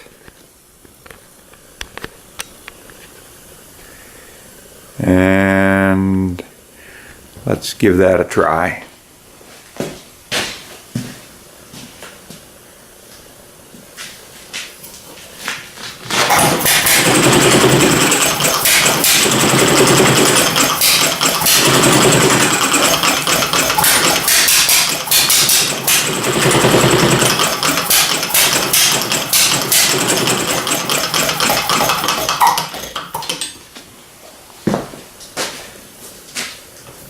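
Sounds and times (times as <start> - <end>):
gas engine clattering: 16.2 - 33.6.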